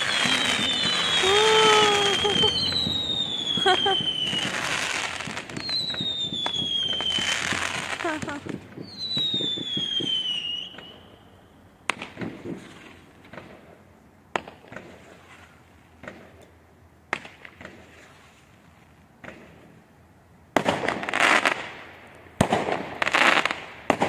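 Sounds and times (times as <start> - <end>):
volley of crackling bangs: 0.0 - 10.0
firework bangs with crackle: 0.0 - 11.0, 11.8 - 16.4, 17.1 - 18.3, 20.5 - 24.0
firework whistle: 0.0 - 11.5.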